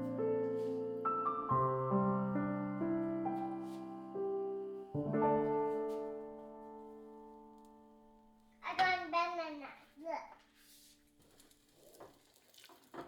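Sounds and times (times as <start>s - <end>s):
soft piano music: 0.0s - 8.6s.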